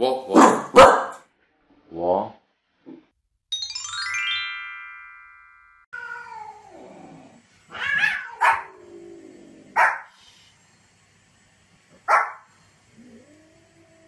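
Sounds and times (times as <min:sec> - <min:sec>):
dog barking sharply: 0:00.3 - 0:01.2, 0:09.8 - 0:10.1, 0:12.1 - 0:12.4
jingle chime: 0:03.5 - 0:05.9
cat meowing: 0:06.0 - 0:07.0, 0:07.7 - 0:08.8.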